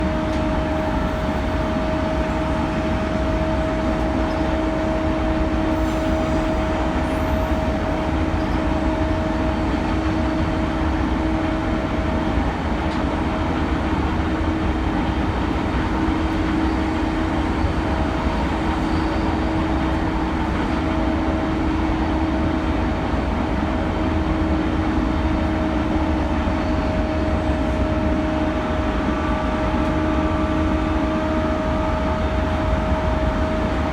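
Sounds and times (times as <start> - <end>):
wheels rumbling on rail: 0.0 - 33.9
electric train motor whine: 25.6 - 33.9.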